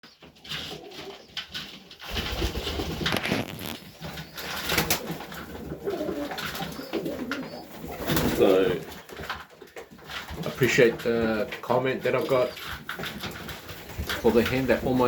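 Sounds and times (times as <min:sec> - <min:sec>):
knocks and rustles: 0:00.1 - 0:15.0
pigeons cooing: 0:00.2 - 0:09.4, 0:10.4 - 0:15.0.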